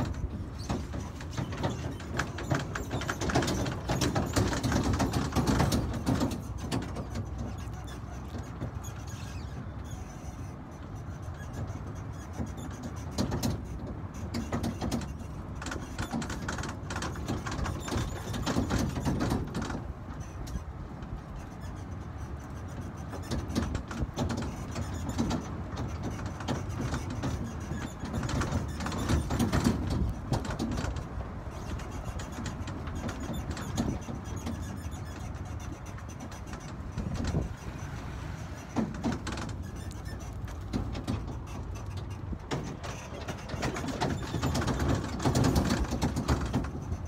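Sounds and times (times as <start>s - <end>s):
train carriage rumbling and rattling: 0.0s - 47.0s.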